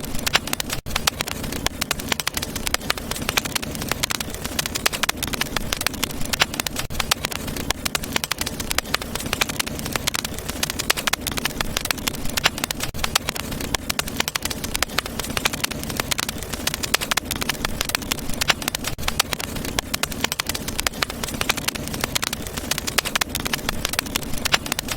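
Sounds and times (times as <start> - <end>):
wood fire crackling: 0.0 - 24.9.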